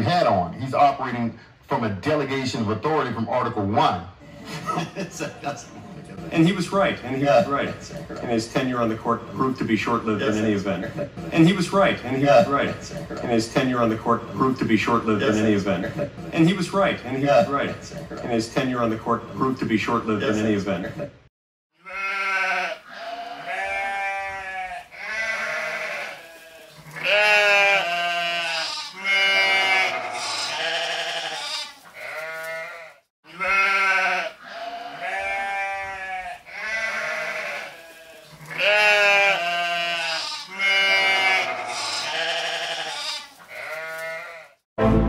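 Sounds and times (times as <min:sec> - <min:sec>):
sheep bleating: 0:21.8 - 0:44.6.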